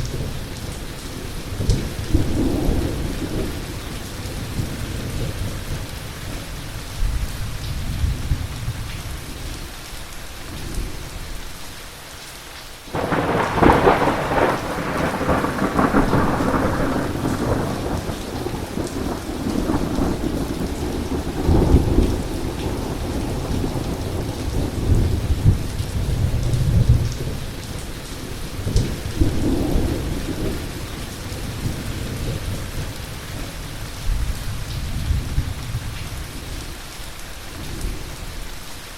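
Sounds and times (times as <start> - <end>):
heavy rain falling: 0.0 - 38.9
loud thunderclap: 12.9 - 27.4
thunder rumbling: 12.9 - 36.0.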